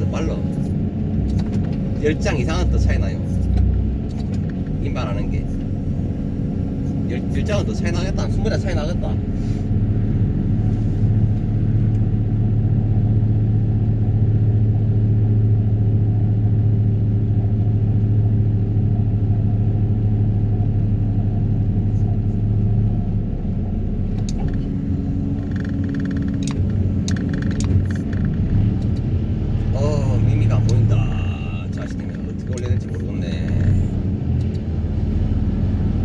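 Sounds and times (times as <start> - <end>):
excavator engine running: 0.0 - 16.4, 18.7 - 36.0
sharp clicks: 24.1 - 29.2.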